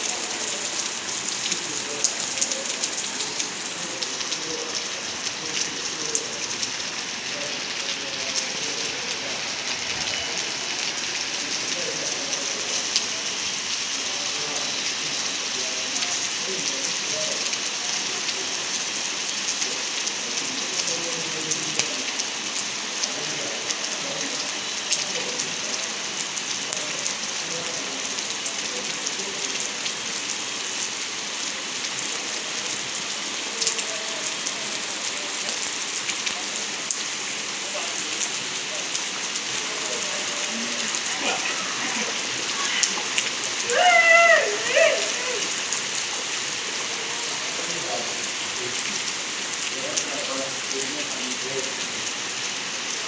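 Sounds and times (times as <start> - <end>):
rain falling: 0.0 - 53.0
raindrops ticking on a surface: 0.0 - 53.0.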